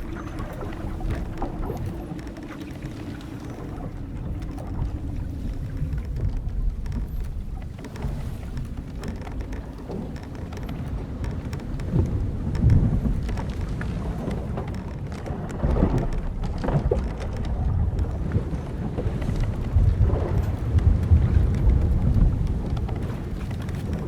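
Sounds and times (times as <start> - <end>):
rumble of wind and waves: 0.0 - 24.0
wooden hull creaking: 0.0 - 24.0.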